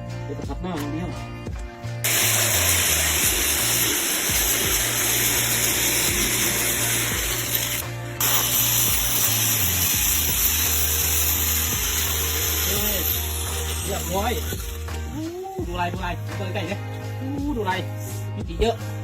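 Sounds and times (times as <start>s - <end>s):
power sander on wood: 2.0s - 15.2s.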